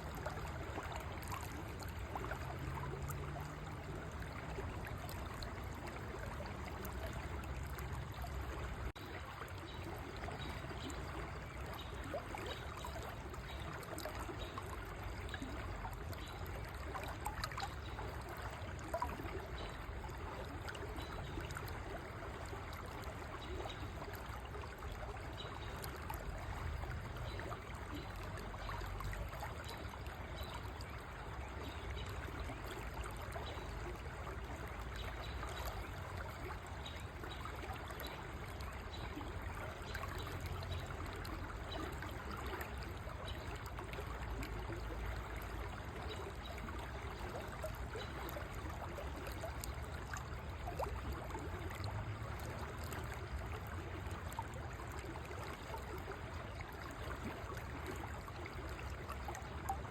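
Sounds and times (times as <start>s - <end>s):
water trickling and gurgling: 0.0s - 59.9s.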